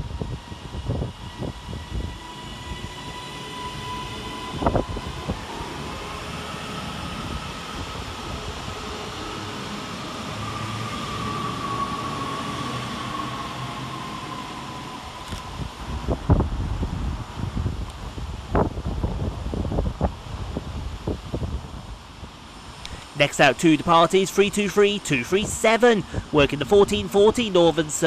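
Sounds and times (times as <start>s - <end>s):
electric train traction whine: 0.0s - 21.6s
train on rails: 0.0s - 28.0s.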